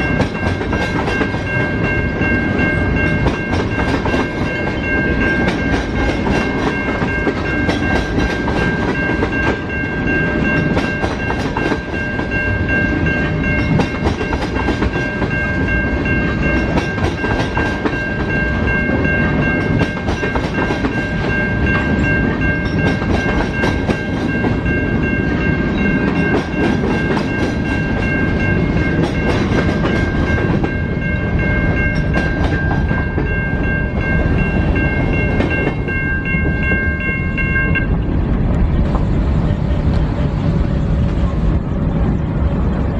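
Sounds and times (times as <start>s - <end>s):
train wheels clicking over rail joints: 0.0s - 31.1s
high-pitched ringing tone: 0.0s - 38.2s.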